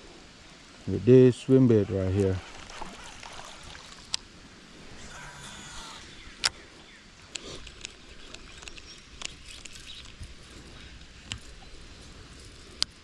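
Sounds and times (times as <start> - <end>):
creek water rushing: 0.0 - 7.3.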